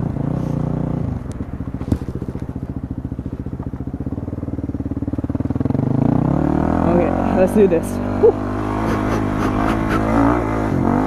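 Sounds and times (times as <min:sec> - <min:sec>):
dirt bike engine idling: 0:00.0 - 0:06.3.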